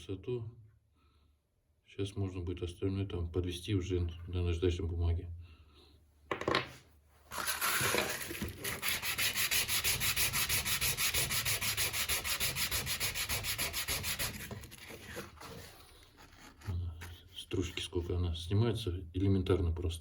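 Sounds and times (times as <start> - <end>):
carbon brush rubbing on sandpaper: 7.3 - 17.9.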